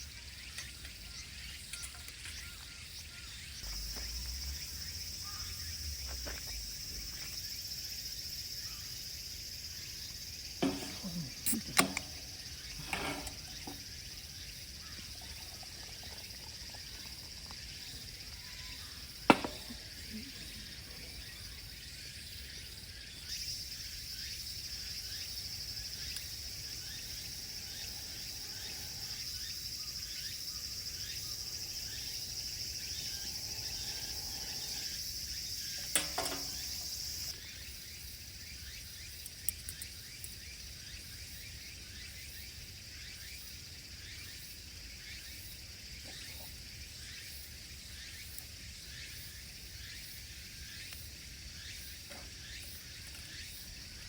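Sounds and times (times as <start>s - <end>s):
crickets chirring: 0.0s - 54.0s
sharp clicks: 10.6s - 13.5s.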